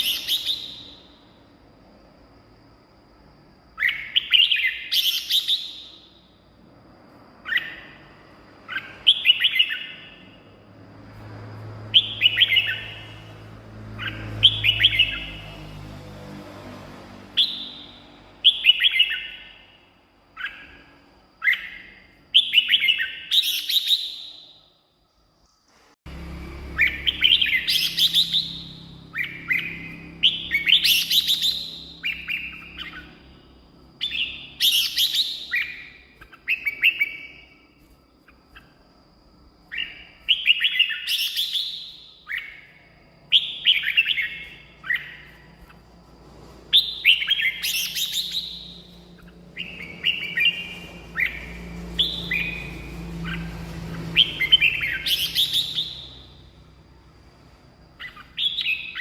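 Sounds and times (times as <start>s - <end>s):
bird singing warbled phrases: 0.0s - 1.3s, 3.6s - 6.5s, 7.3s - 10.6s, 11.8s - 15.8s, 17.3s - 24.7s, 26.2s - 39.0s, 39.6s - 46.0s, 46.7s - 56.8s, 57.9s - 59.0s.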